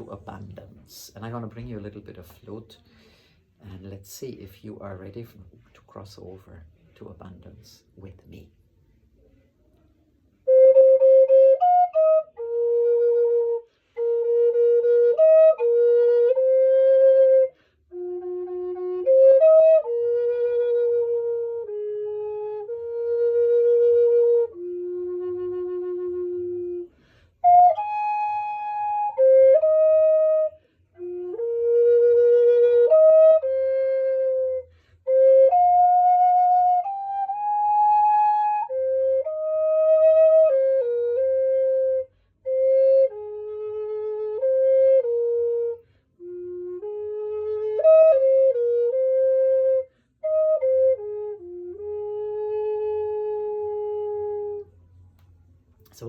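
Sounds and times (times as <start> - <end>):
solo flute melody: 9.3 - 56.0.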